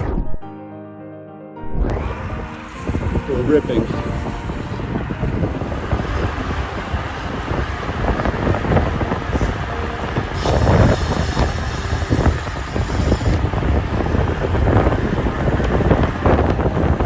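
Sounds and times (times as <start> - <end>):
wind buffeting microphone: 1.9 - 17.0
high hiss: 2.1 - 15.4.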